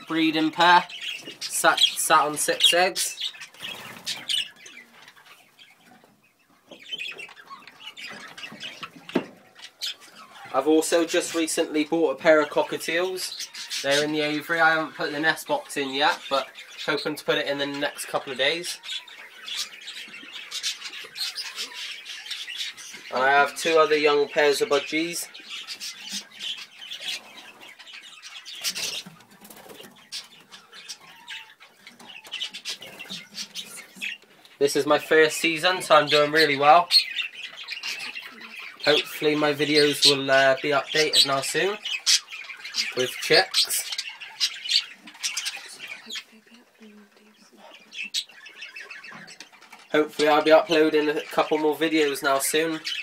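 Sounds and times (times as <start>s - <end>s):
budgerigars chirping: 0.0s - 53.0s
wings fluttering: 3.5s - 4.6s, 28.6s - 30.6s.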